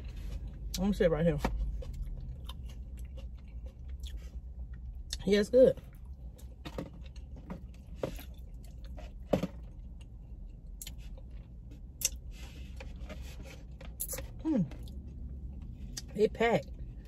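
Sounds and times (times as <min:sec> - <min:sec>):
chewing and mouth smacks: 0:01.7 - 0:05.2.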